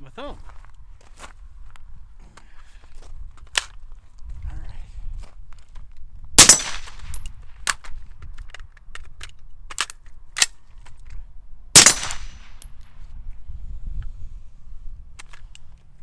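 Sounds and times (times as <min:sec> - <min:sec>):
suppressed rifle shots: 0:06.4 - 0:07.8, 0:11.8 - 0:12.8.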